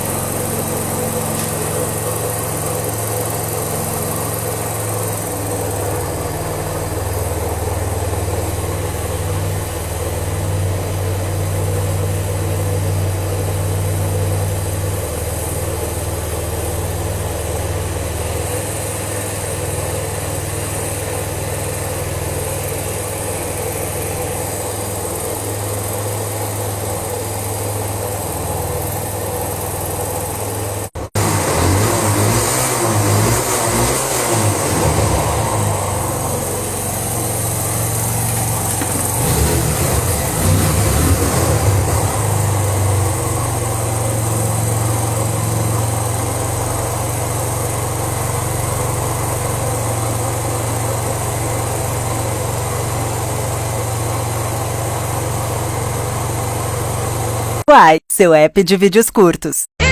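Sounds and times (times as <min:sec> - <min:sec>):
motorcycle engine idling: 0:00.0 - 0:30.9, 0:35.3 - 0:57.6.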